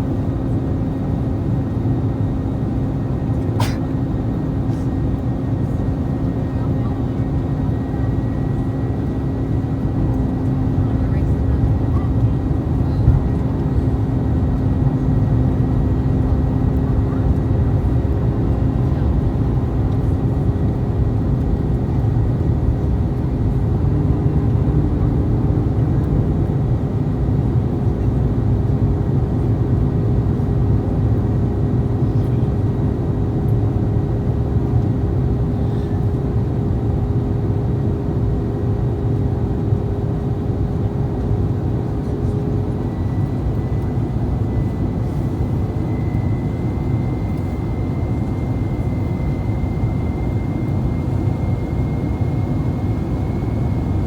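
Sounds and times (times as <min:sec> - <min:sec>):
jet cabin rumble: 0:00.0 - 0:37.2, 0:37.8 - 0:54.0
faint whine: 0:42.8 - 0:54.0.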